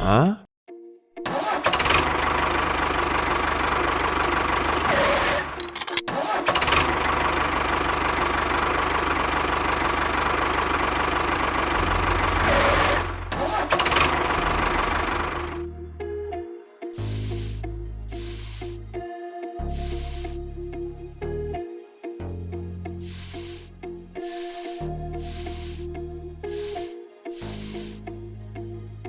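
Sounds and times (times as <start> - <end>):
engine running: 17.0 - 18.8, 19.7 - 20.4, 23.0 - 25.9, 26.5 - 28.0.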